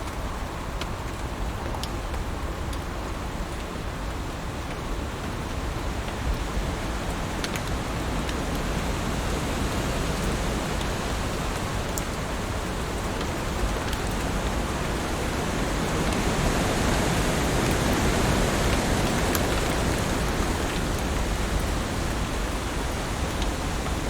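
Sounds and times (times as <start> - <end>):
faint raindrop ticks: 0.0 - 24.0
heavy rain falling: 0.0 - 24.0.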